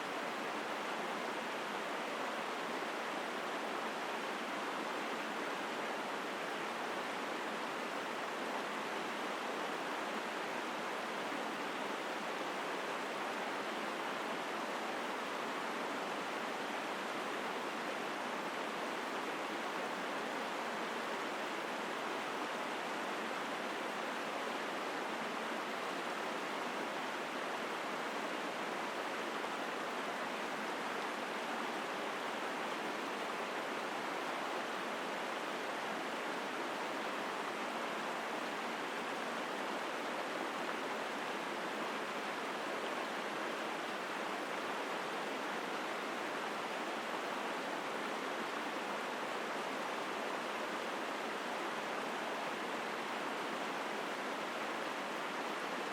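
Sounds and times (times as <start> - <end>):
stream rushing over rocks: 0.0 - 55.9.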